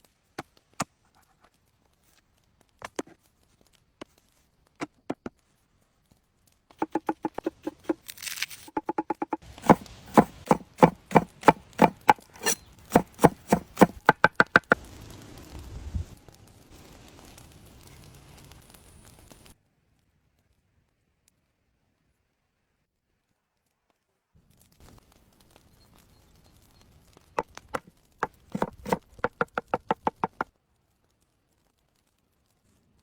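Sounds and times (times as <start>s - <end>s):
knife chopping food: 6.8s - 8.0s, 8.7s - 14.8s, 27.4s - 30.4s.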